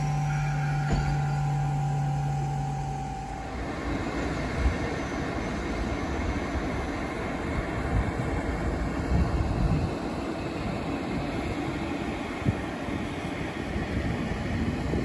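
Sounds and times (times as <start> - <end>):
steady electric hum: 0.0 - 5.5
train wheels rumbling on rails: 0.0 - 15.0.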